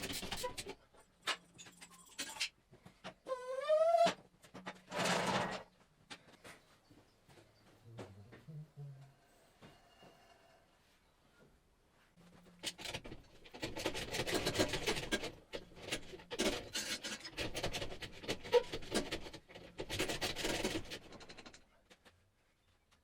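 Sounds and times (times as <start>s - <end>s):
rasping scraping noise with clicks: 12.5s - 22.2s.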